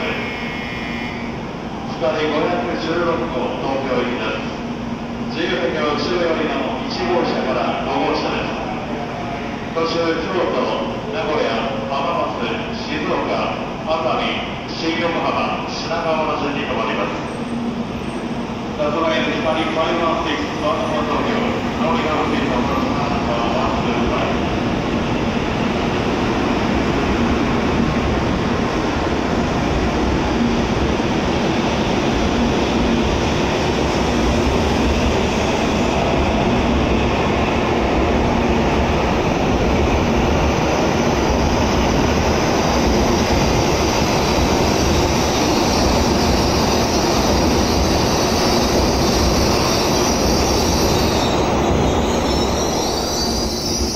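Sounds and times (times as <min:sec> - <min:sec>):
train rumbling past: 0:00.0 - 0:53.9
high wheel squeal: 0:45.3 - 0:53.9.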